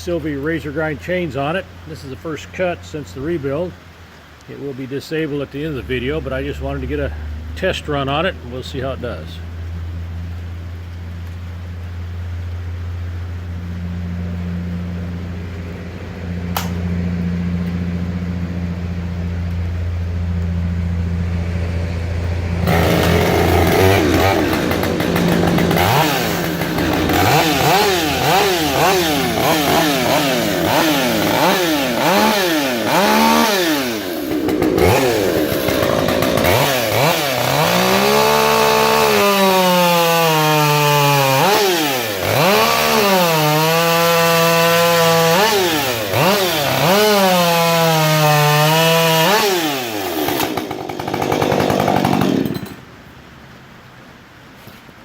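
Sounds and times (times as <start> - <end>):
chainsaw idling and revving: 16.5 - 16.8, 22.3 - 52.9.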